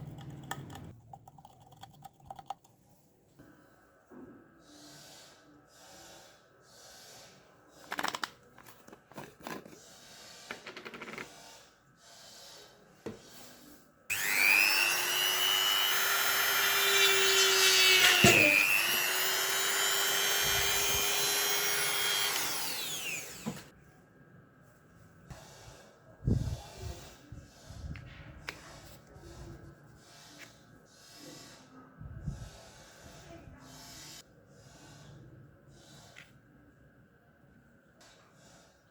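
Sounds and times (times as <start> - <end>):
small electric motor whining: 14.1 - 23.7.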